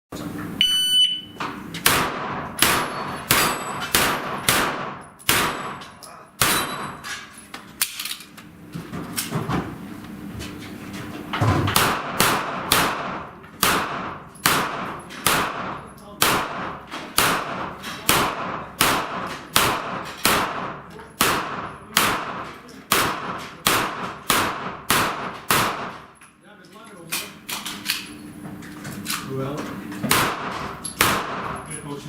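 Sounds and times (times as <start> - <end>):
shot timer beep: 0.6 - 1.4
rapid pistol gunshots: 1.8 - 5.8, 11.7 - 26.1, 30.1 - 31.6
steel targets ringing: 2.7 - 7.1.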